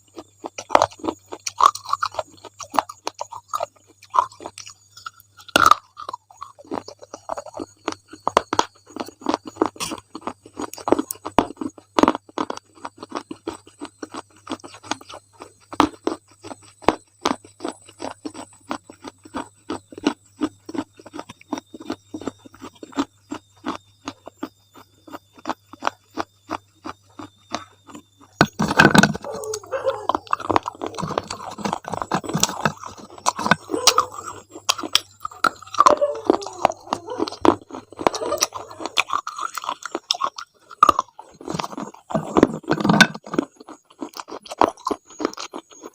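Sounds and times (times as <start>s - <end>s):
chewing crunchy ice cream: 0.0s - 45.9s.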